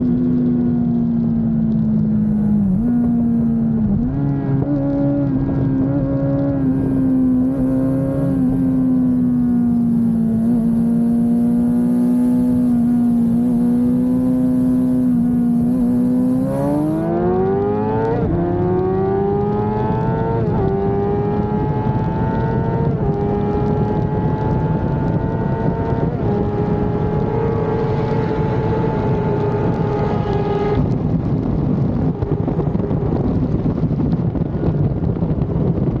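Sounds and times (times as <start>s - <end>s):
steady rushing noise: 21.6s - 36.0s.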